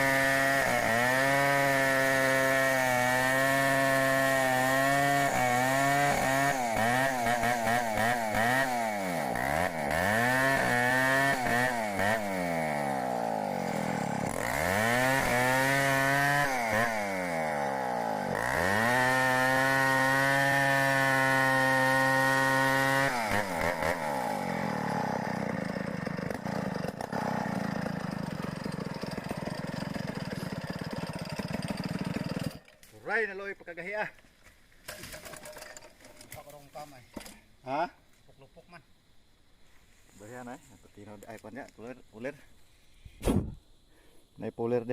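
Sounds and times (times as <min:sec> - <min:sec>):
chainsaw engine revving: 0:00.0 - 0:32.7
rough hissing noise: 0:38.5 - 0:44.9.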